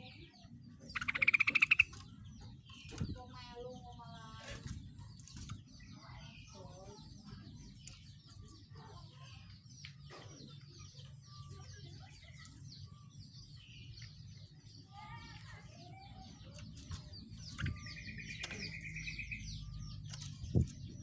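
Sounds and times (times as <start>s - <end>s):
songbird chirping and whistling: 0.0s - 3.5s, 15.7s - 21.0s
low background hum: 0.0s - 21.0s.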